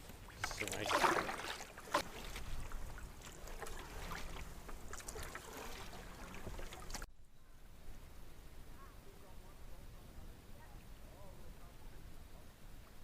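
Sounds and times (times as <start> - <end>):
canoe paddle splashes: 0.0 - 7.1.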